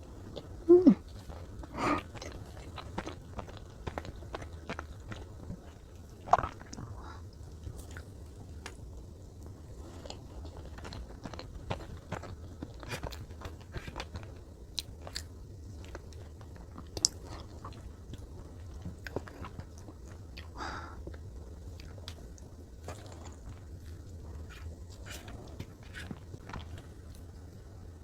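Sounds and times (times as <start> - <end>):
soft chewing: 0.0 - 28.0.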